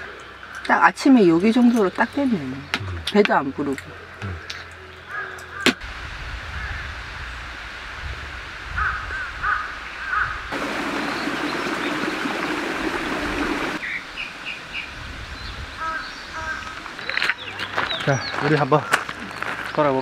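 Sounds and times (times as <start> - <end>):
birds calling: 3.9 - 5.8, 8.8 - 19.8
rushing noise: 10.5 - 13.8.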